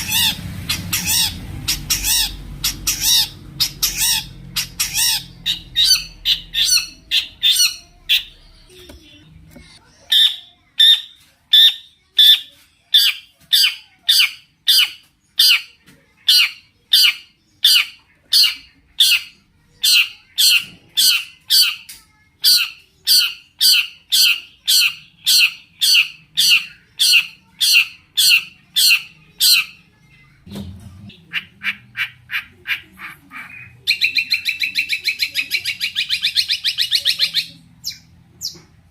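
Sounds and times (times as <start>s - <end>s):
shrike calling: 0.0s - 8.4s.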